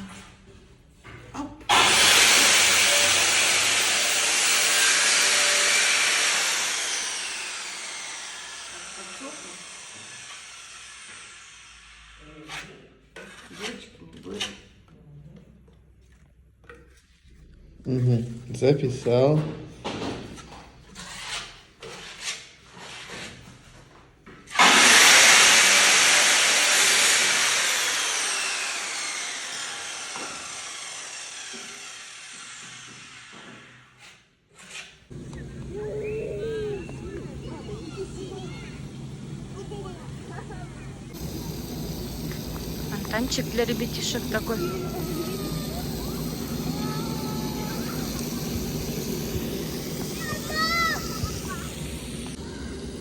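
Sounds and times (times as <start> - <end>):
loud hiss: 1.7 - 12.1, 24.6 - 32.3, 41.1 - 52.4
aerosol can spray hiss: 41.2 - 52.4.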